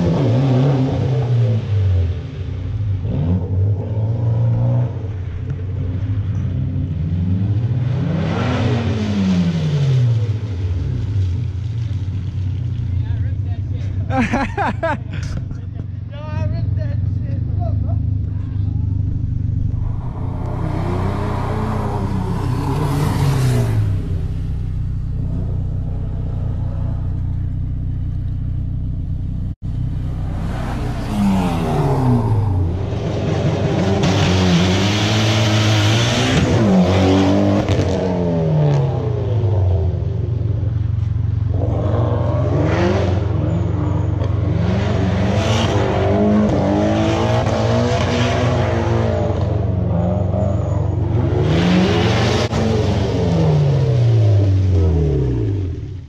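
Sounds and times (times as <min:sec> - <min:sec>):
car engine revving: 0:14.2 - 0:56.0.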